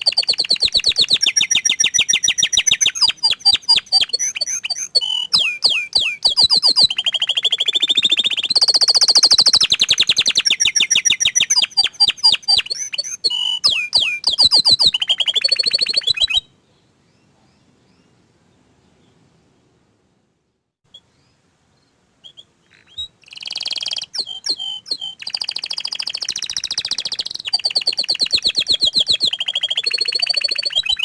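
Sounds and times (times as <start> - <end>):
canary singing trills: 0.0 - 18.2, 20.9 - 31.0.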